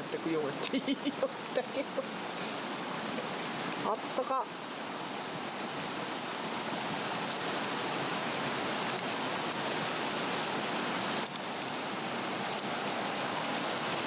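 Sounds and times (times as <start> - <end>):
log fire crackling and hissing: 0.0 - 14.0.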